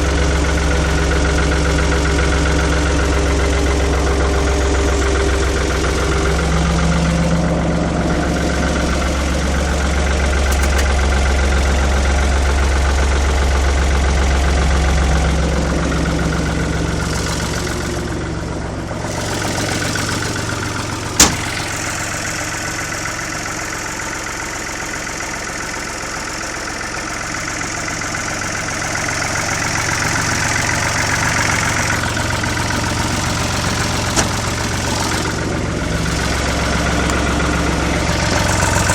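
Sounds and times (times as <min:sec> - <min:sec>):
tractor diesel engine idling: 0:00.0 - 0:38.9
sharp click: 0:10.5 - 0:11.0.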